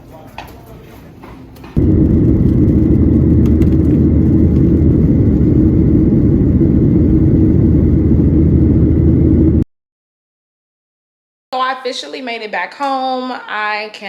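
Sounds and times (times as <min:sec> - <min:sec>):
vehicle rumbling in motion: 0:01.8 - 0:09.6.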